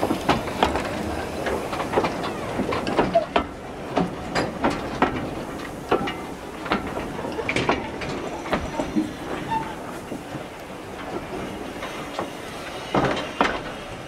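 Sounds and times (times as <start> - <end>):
train wheels clanking on track: 0.0 - 14.0
brief wheel squeals: 8.7 - 9.9.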